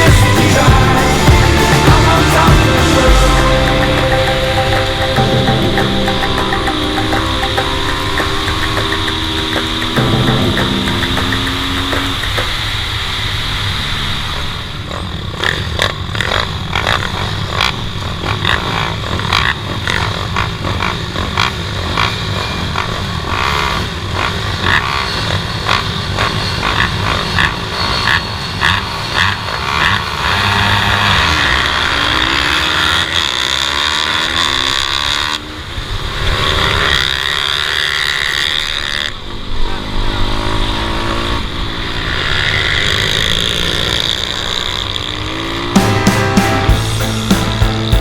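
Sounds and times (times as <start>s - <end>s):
pit bike engine revving: 0.0s - 48.0s.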